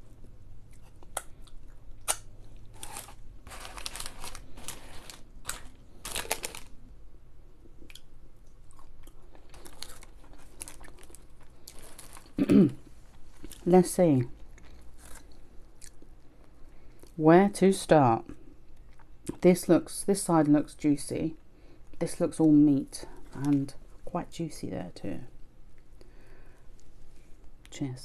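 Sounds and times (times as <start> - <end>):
person chewing crunchy food: 0.2 - 6.7, 7.6 - 12.4, 14.4 - 17.2.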